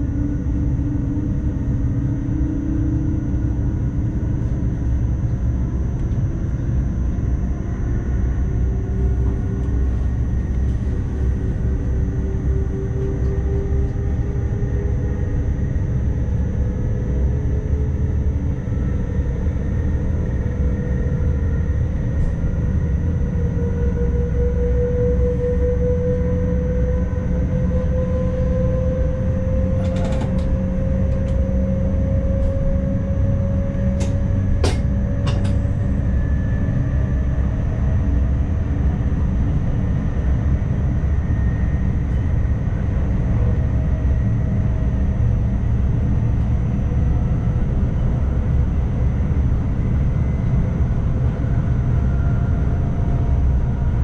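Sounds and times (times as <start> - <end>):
electric train running: 29.6 - 36.1.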